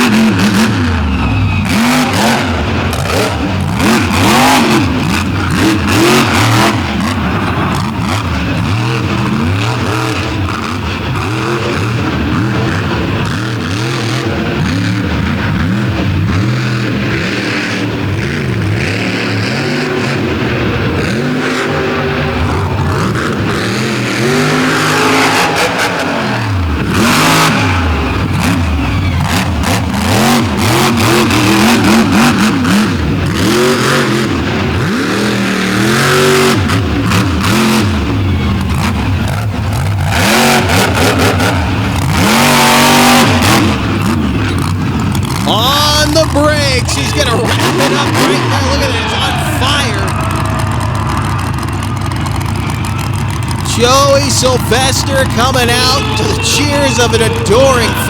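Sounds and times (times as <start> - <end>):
truck crashing down: 0.0 - 58.0
truck engine revving hard: 0.0 - 58.0.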